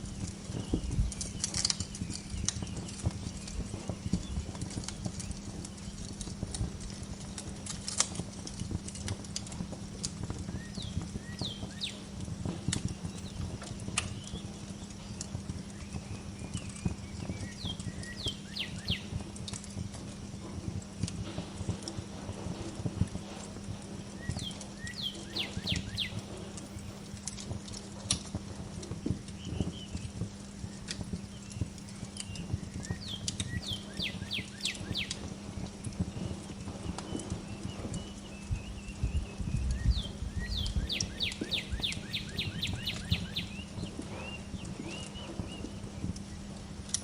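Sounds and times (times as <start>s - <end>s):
low hum: 0.0s - 47.0s
wood fire crackling: 0.0s - 47.0s
songbird whistling: 10.5s - 12.0s, 15.8s - 19.1s, 24.2s - 27.0s, 31.5s - 35.3s, 37.1s - 45.8s
small bird chirping: 10.6s - 19.2s, 24.2s - 27.1s, 31.3s - 35.3s, 36.2s - 45.8s.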